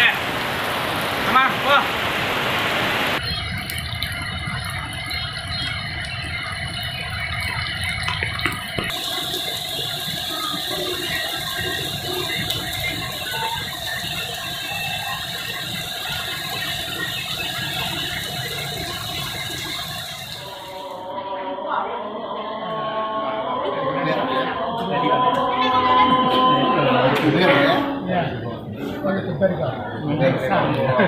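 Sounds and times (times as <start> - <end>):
heavy rain pouring: 0.0 - 21.2.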